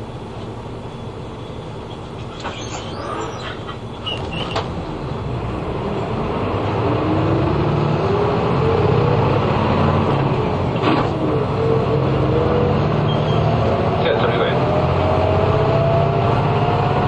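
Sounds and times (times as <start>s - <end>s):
bus engine accelerating: 0.0s - 17.0s.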